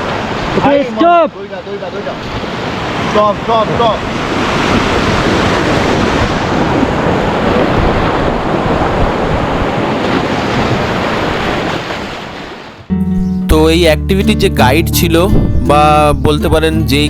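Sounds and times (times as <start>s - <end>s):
river rapids rushing: 0.0s - 12.6s
wind buffeting microphone: 2.3s - 12.6s, 15.0s - 16.5s.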